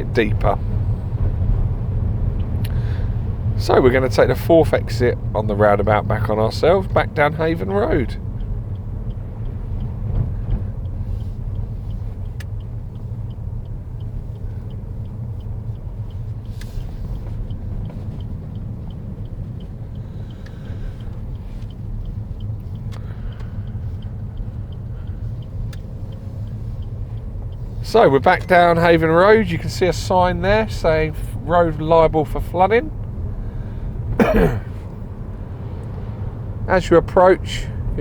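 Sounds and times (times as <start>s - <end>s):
car engine and road rumble: 0.0s - 38.0s
turn indicator ticking: 0.0s - 38.0s.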